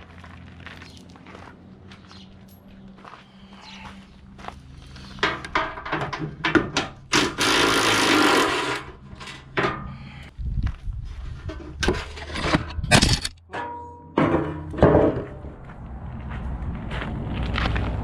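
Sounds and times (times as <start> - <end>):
hand tools clanking on metal: 5.0 - 10.2, 11.5 - 15.5.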